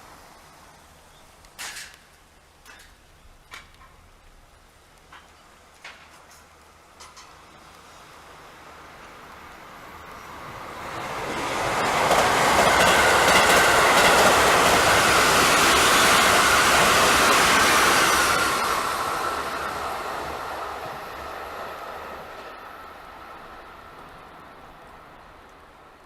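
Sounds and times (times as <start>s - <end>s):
electric train passing: 6.8s - 26.0s.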